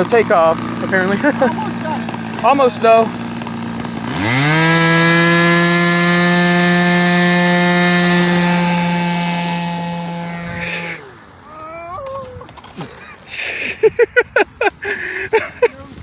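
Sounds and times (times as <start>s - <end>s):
model plane motor whine: 0.0s - 11.4s.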